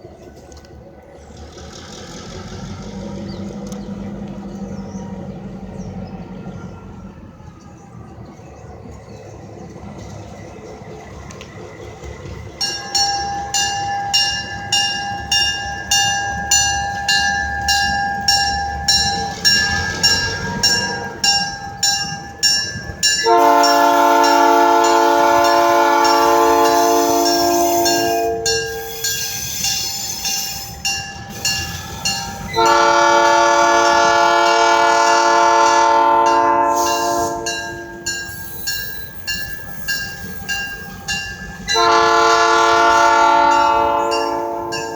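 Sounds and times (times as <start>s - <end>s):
bell ringing: 12.6s - 32.2s
locomotive air horn blasts: 23.2s - 38.2s, 41.7s - 44.9s.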